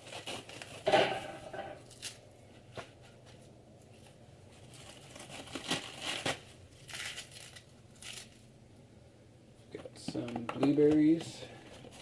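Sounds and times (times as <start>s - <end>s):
packaging rustling and crinkling: 0.0s - 1.2s, 2.8s - 8.4s, 10.2s - 12.0s.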